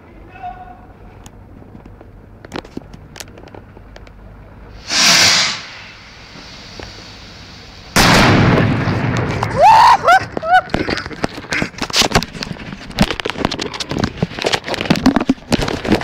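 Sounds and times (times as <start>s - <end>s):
loud hissing whoosh: 4.7s - 8.3s
loud explosion blast: 8.0s - 9.6s
faint crackles: 8.8s - 16.0s.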